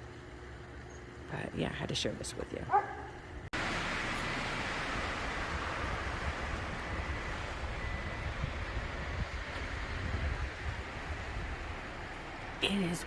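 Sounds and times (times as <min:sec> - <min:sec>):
wind buffeting microphone: 0:03.3 - 0:12.6.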